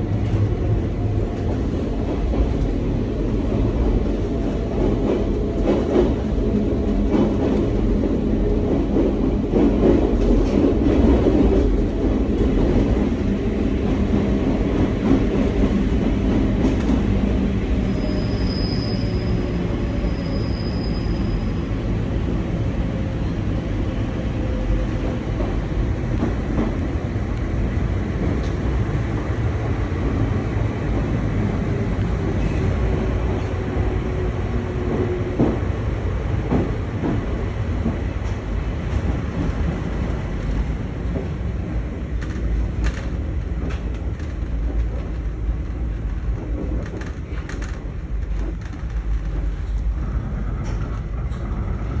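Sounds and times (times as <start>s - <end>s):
train wheels rumbling on rails: 0.0s - 52.0s
high-pitched wheel squeals: 17.8s - 21.7s.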